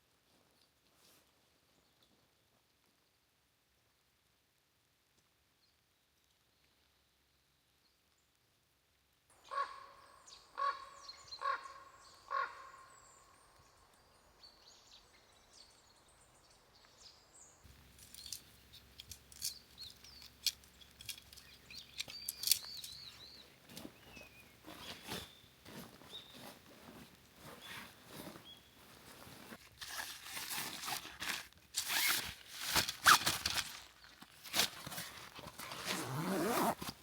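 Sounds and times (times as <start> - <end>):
high bird chirps: 19.4 - 24.5.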